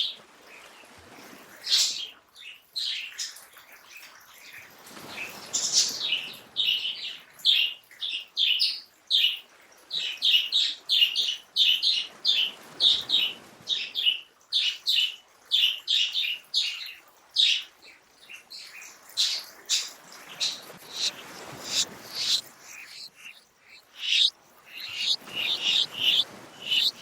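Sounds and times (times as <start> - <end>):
faint background hiss: 4.4 - 27.0
birds chirping: 18.5 - 27.0.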